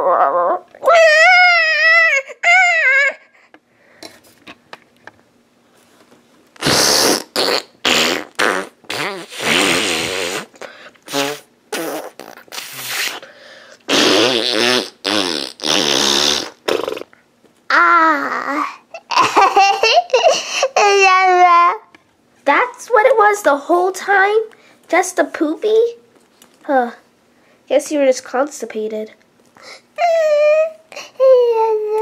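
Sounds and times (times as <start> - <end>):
buzzing fart noises: 6.6 - 13.3, 13.9 - 17.2.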